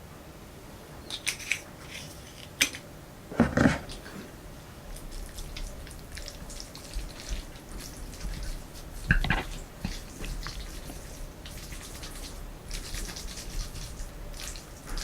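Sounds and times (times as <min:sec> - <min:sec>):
wet chewing clicks: 0:05.0 - 0:15.0
noodle slurp: 0:05.1 - 0:15.0.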